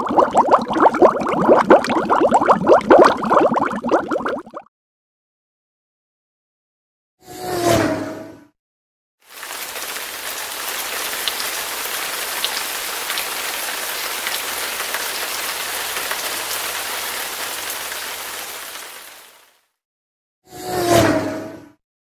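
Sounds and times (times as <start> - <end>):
rain-like hiss: 9.3 - 19.6.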